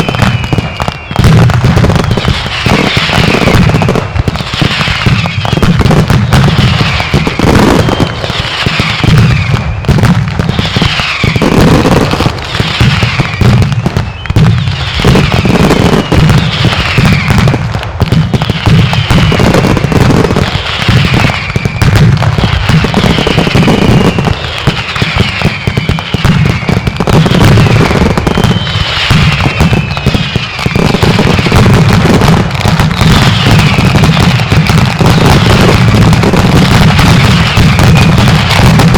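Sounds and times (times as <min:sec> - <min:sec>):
whistles falling in pitch: 0:00.0 - 0:01.2, 0:13.0 - 0:14.4, 0:25.1 - 0:30.8
fireworks banging: 0:00.0 - 0:38.9.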